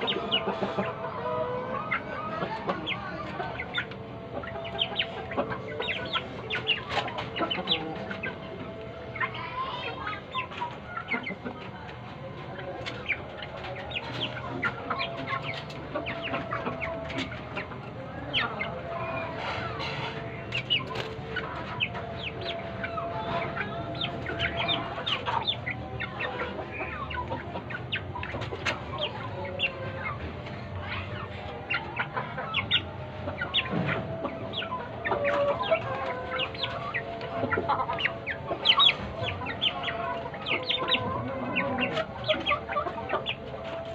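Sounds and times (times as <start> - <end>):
chicken clucking: 0.0 - 43.9
chicks peeping: 0.0 - 43.9.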